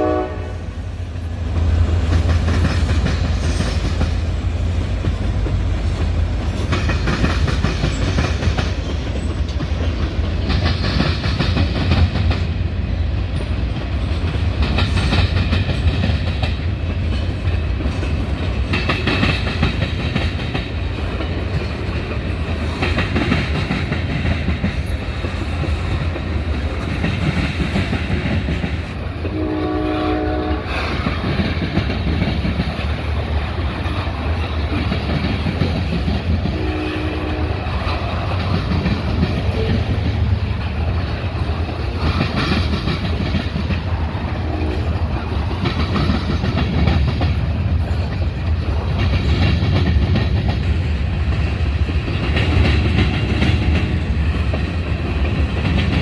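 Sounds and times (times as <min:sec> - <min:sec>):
train horn note: 0:00.0 - 0:00.8, 0:29.2 - 0:30.9, 0:36.5 - 0:37.9, 0:44.4 - 0:44.9
freight train rumbling: 0:00.0 - 0:56.0.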